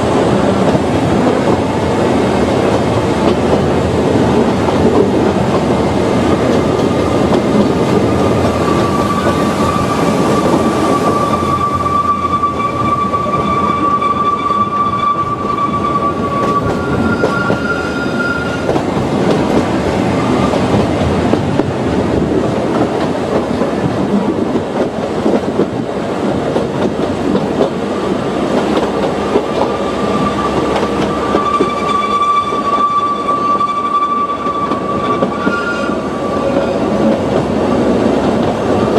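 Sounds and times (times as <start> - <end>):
train wheels rumbling on rails: 0.0 - 38.9
high wheel squeal: 8.1 - 18.7, 29.7 - 36.9.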